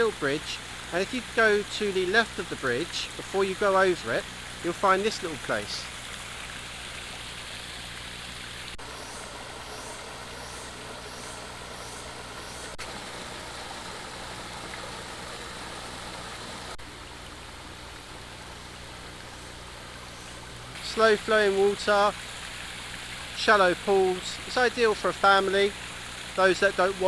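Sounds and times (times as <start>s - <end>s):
stream flowing over rocks: 0.0s - 27.0s.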